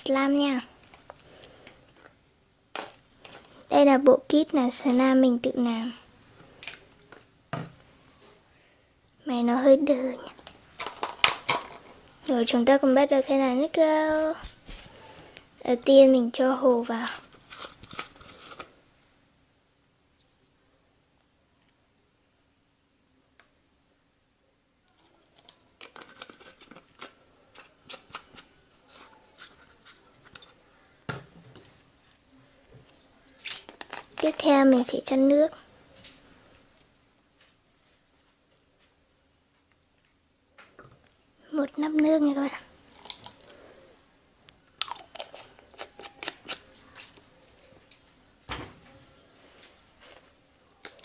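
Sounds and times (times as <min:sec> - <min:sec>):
small containers clicking: 0:10.4 - 0:12.3, 0:24.9 - 0:30.6, 0:44.7 - 0:48.0.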